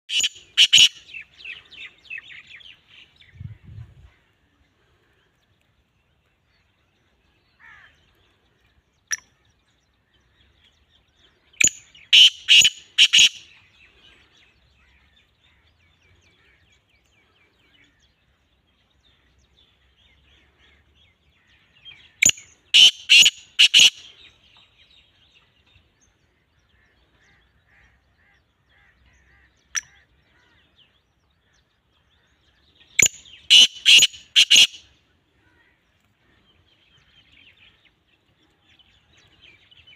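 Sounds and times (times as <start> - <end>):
bird calling harsh notes: 0.1 - 1.6, 11.6 - 13.5, 22.2 - 24.2, 33.0 - 34.9.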